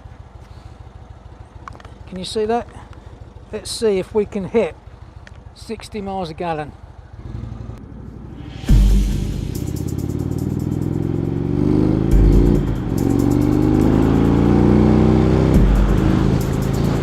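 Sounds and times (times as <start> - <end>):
motorcycle engine accelerating: 6.9 - 17.0.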